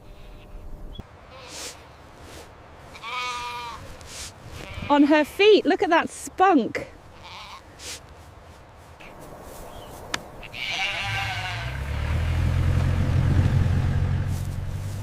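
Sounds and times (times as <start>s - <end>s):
lamb bleating: 2.9s - 3.9s, 4.6s - 5.2s, 7.1s - 7.7s, 10.4s - 11.8s
low steady rumble: 11.2s - 15.0s.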